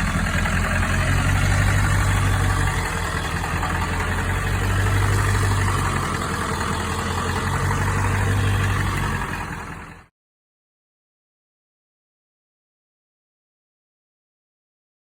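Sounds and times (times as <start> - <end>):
diesel engine idling: 0.0 - 10.1.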